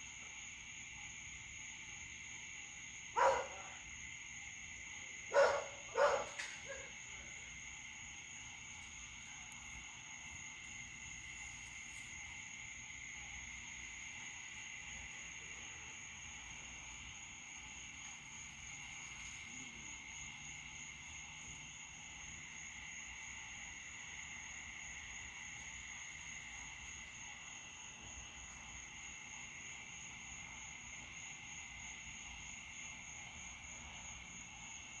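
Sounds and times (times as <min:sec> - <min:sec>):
crickets and frogs chirring: 0:00.0 - 0:35.0
dog barking: 0:03.2 - 0:03.9, 0:05.3 - 0:07.0.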